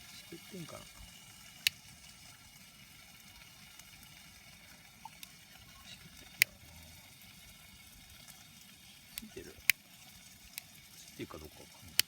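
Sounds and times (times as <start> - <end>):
fire hissing: 0.0 - 12.0
wood popping: 8.1 - 12.0.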